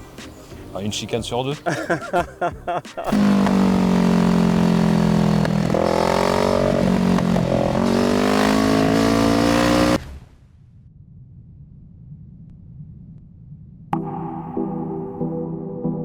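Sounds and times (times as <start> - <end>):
motorcycle engine accelerating: 3.0 - 10.1.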